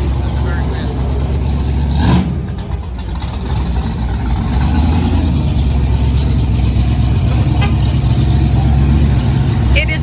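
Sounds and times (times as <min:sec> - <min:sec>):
car engine idling rumble: 0:00.0 - 0:10.0.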